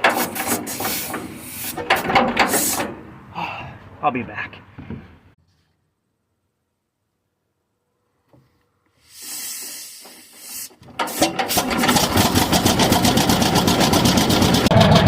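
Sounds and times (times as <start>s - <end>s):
tractor engine running: 0.0s - 3.1s, 10.0s - 15.0s
hiss: 0.2s - 1.8s, 2.4s - 2.9s, 8.9s - 11.8s.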